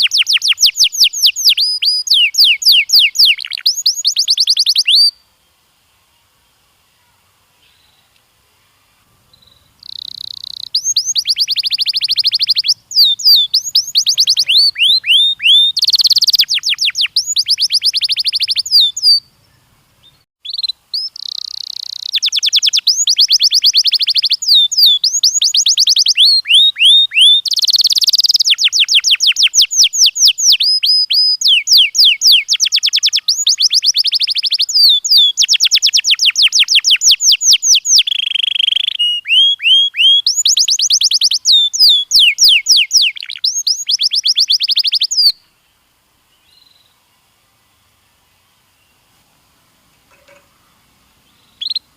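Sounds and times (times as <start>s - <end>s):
canary singing trills: 0.0s - 5.2s, 9.2s - 45.5s, 50.1s - 51.9s.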